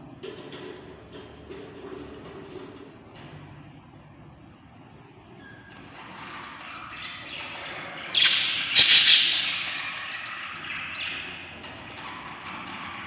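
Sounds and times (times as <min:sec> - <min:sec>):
budgie chicks squawking: 0:06.2 - 0:11.6.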